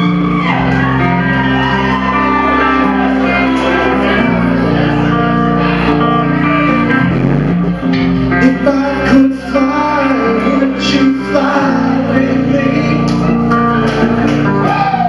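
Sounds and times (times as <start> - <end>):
live band playing loudly: 0.0 - 4.8, 5.4 - 8.8.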